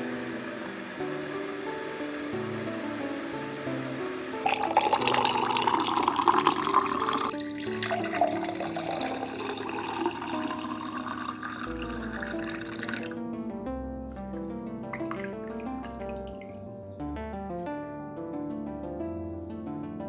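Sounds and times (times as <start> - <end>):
background music: 0.0 - 20.0
tap water running into sink: 4.4 - 13.2, 14.8 - 16.6.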